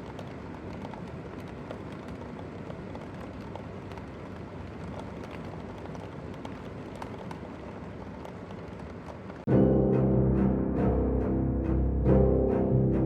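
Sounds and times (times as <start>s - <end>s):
loud music: 9.5s - 13.0s.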